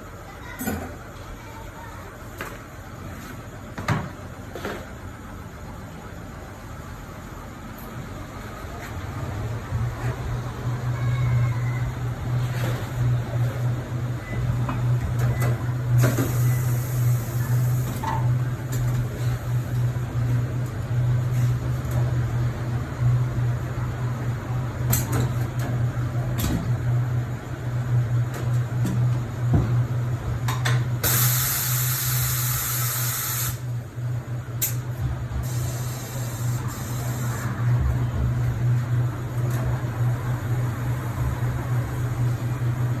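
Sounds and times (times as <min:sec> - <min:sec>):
compressed air hissing: 0:31.0 - 0:33.6.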